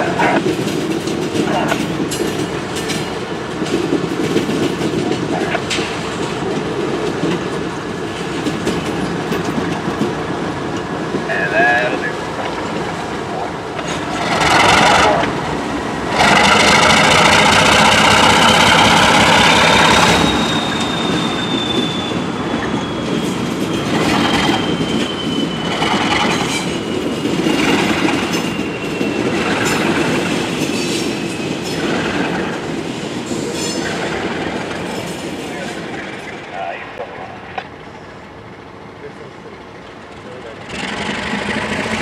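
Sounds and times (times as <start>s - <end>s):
wheels clacking over rail joints: 0.0s - 11.4s, 12.3s - 22.0s, 39.8s - 42.0s
diesel locomotive passing: 0.0s - 42.0s
thin wheel squeal: 19.5s - 23.1s.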